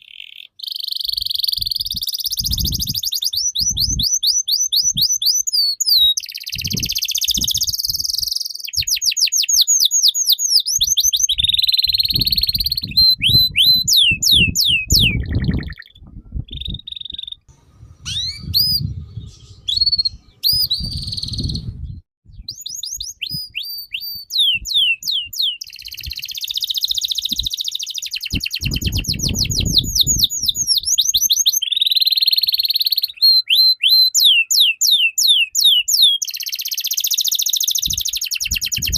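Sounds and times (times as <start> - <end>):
songbird singing: 0.0 - 38.9
low rumbles: 17.5 - 22.0.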